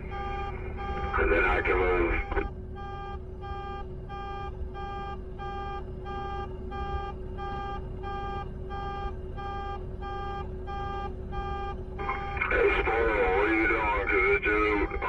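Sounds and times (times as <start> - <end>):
vehicle backup alarm beeping: 0.0 - 15.0.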